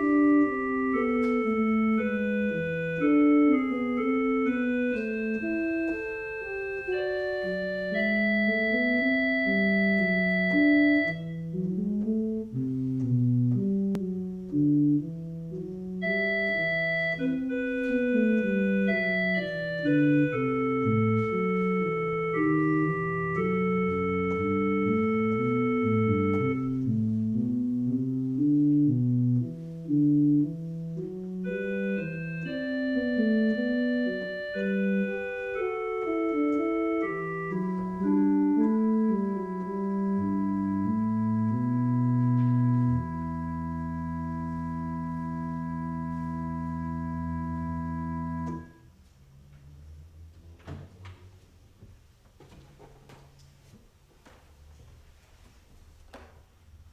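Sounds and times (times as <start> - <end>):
walking bass line: 0.0 - 48.8
organ chords: 0.0 - 49.1.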